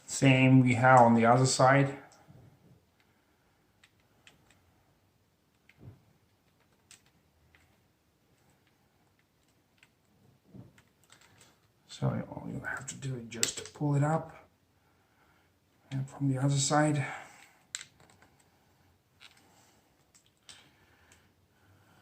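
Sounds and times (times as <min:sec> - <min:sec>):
plastic parts clicking and tapping: 0:05.5 - 0:07.8, 0:08.4 - 0:11.7, 0:17.4 - 0:18.5, 0:20.0 - 0:21.2.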